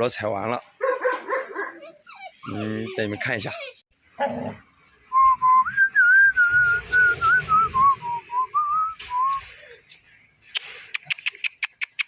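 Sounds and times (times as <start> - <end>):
person whistling a tune: 5.1 - 9.4.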